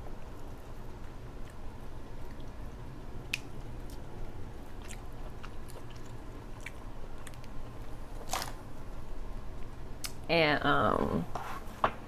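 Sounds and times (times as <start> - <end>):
person chewing: 4.7 - 8.6.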